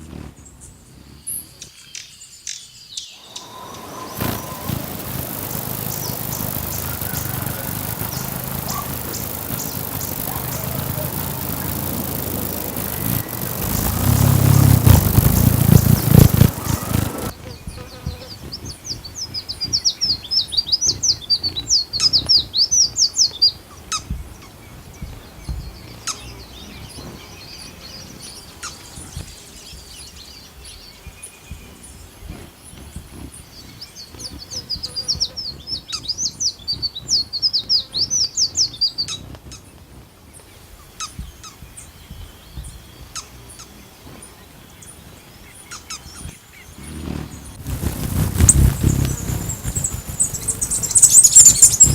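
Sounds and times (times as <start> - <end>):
bird singing rapid high chirps: 0.1 - 31.7, 32.3 - 39.8, 40.5 - 51.9
bird call notes: 3.2 - 17.9.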